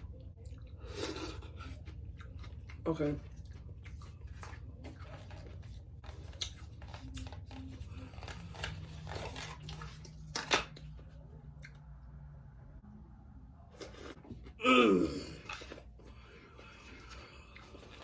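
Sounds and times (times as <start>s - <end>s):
low steady hum: 0.0s - 18.0s
wet chewing and mouth smacks: 0.1s - 10.9s.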